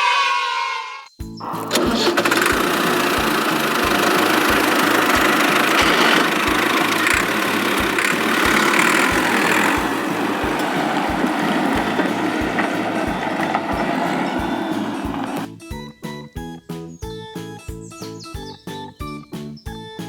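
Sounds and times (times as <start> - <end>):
steady rattling: 1.4 - 15.5
tractor engine running: 1.4 - 15.5.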